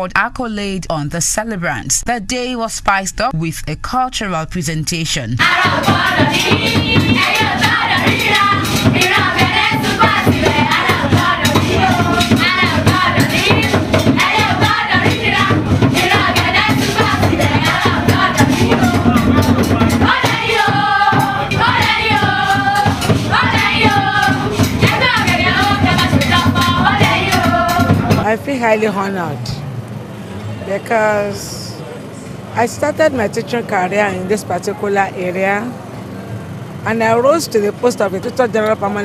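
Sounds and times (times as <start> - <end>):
voices singing together: 5.4 - 28.3
hand drums: 5.4 - 28.4
shaken percussion: 5.4 - 28.4.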